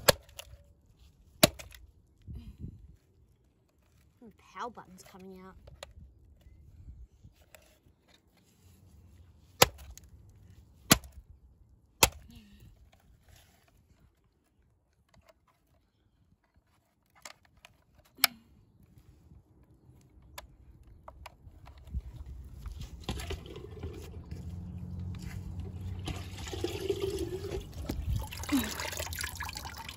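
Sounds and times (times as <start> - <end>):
hammer hitting plastic: 1.4 - 1.8, 10.8 - 11.2, 12.0 - 12.3.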